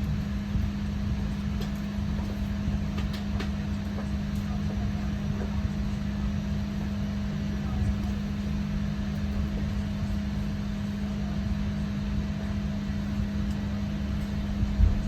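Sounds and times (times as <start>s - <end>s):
airliner cabin engine rush: 0.0s - 15.0s
constant low hum: 0.0s - 15.0s
deep rumble: 12.3s - 15.0s.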